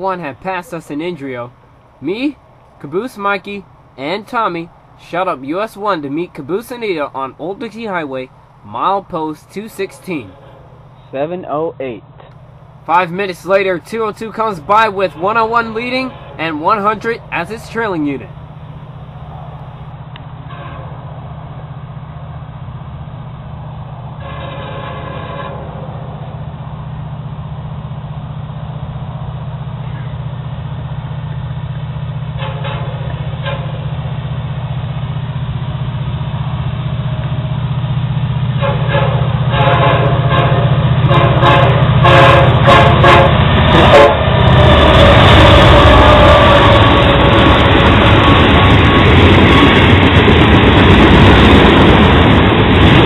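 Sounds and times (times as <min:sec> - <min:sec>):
locomotive engine rumble: 0:00.0 - 0:53.0
train air horn: 0:09.9 - 0:11.1, 0:15.1 - 0:17.1, 0:20.4 - 0:21.0, 0:24.2 - 0:25.8, 0:32.4 - 0:33.9, 0:38.6 - 0:48.8.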